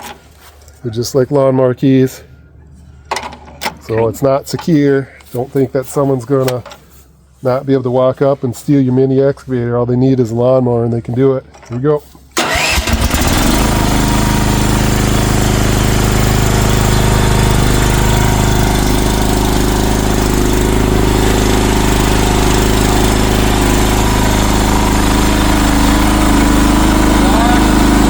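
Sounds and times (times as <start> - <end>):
engine cranking and starting: 11.6 - 28.0
engine idling: 12.4 - 28.0.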